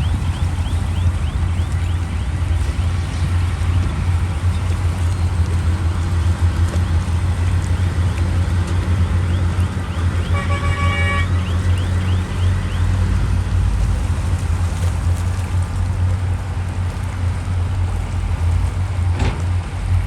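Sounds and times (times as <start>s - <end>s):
heavy diesel machinery running: 0.0s - 20.0s
vehicle horn: 10.2s - 12.0s.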